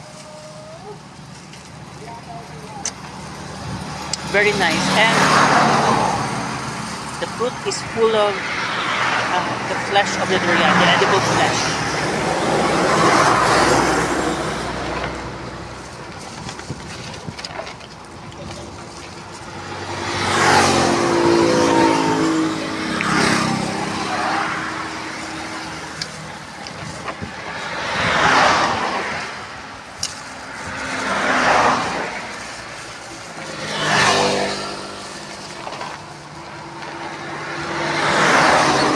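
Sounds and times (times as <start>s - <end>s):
vehicles passing: 0.0s - 38.9s.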